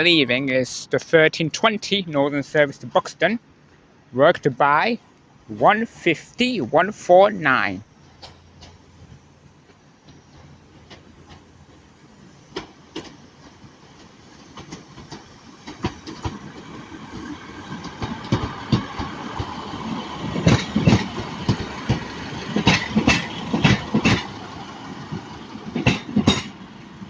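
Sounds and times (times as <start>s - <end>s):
diesel train rumble: 0.0s - 27.0s
train wheels clicking over rail joints: 8.0s - 27.0s.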